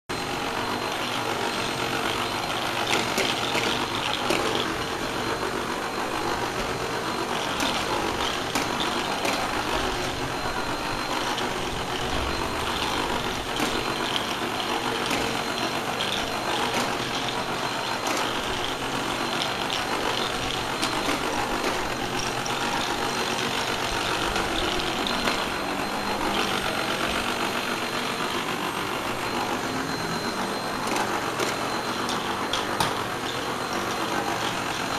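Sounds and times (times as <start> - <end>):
vacuum cleaner whining: 0.1 - 34.9.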